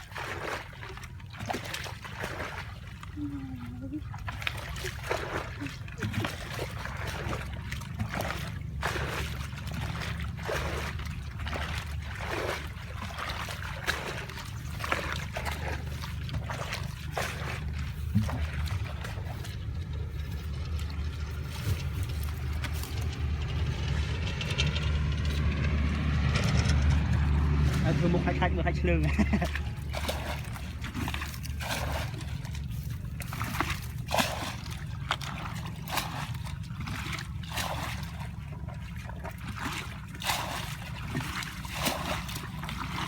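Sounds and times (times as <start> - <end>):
shallow water splashing: 0.0 - 43.0
low rumble: 3.0 - 43.0.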